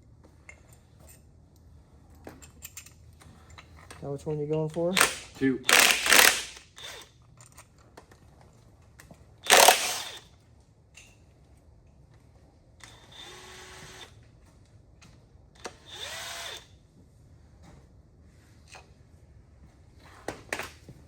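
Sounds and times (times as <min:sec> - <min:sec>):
power tool whining motor: 0:05.0 - 0:07.1, 0:09.4 - 0:10.2, 0:15.7 - 0:16.7.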